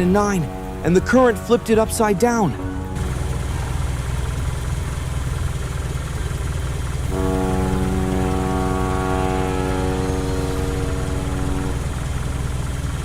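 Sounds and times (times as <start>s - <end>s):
boat engine rumbling: 0.0s - 13.0s
steady pitched drone: 0.0s - 13.0s.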